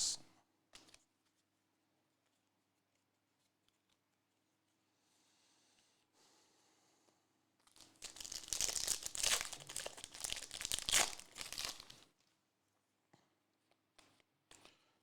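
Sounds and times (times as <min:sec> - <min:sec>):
plastic wrappers crinkling: 0:07.8 - 0:12.0.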